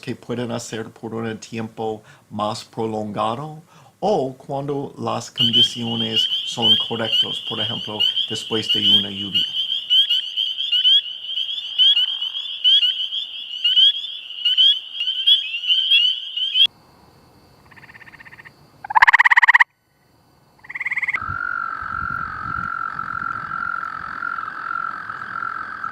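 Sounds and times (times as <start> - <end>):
frog calls: 5.4 - 16.7, 17.6 - 19.7, 20.6 - 25.9.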